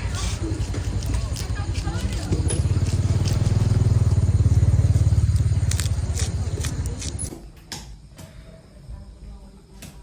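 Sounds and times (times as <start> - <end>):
motorcycle engine rumbling: 0.0 - 7.6.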